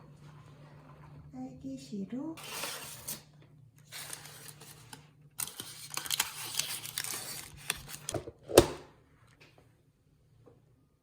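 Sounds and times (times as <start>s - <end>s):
rustling and crinkling handling noise: 2.4s - 8.4s.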